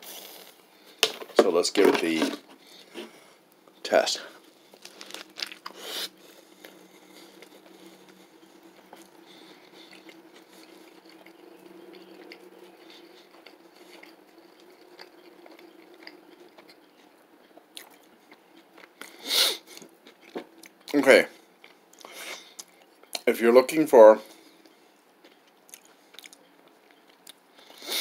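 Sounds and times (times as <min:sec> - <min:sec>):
slow moist chewing: 0:04.4 - 0:23.3, 0:24.3 - 0:28.0
biting into a burger: 0:04.7 - 0:20.9.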